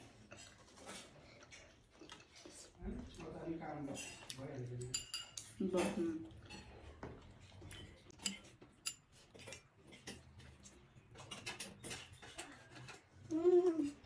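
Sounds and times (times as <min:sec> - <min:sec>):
cutlery clicking on plates: 0:04.3 - 0:06.8, 0:07.6 - 0:13.2
person humming: 0:13.3 - 0:14.0.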